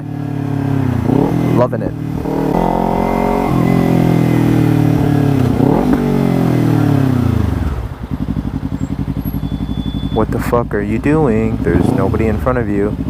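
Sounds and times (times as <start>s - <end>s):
motorcycle engine winding down: 0.3s - 10.6s.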